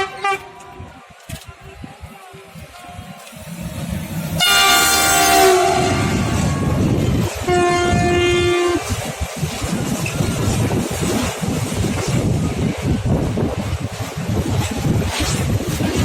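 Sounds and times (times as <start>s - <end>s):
train horn blasts: 0.0s - 0.6s, 4.2s - 8.9s
train rumbling past: 1.7s - 16.0s.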